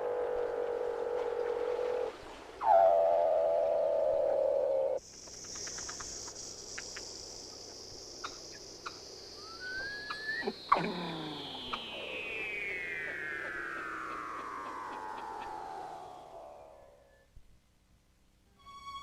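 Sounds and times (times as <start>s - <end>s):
high whistling tone falling: 9.4s - 17.2s
short rising chirp: 9.4s - 17.2s
quick downward sweeps: 9.5s - 17.0s
held electronic tone: 10.3s - 17.0s.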